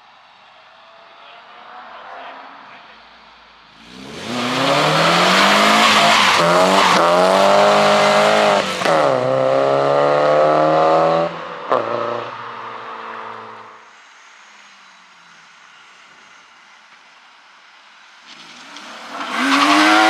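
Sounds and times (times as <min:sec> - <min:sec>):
car engine accelerating hard: 0:03.7 - 0:13.8, 0:18.3 - 0:20.0.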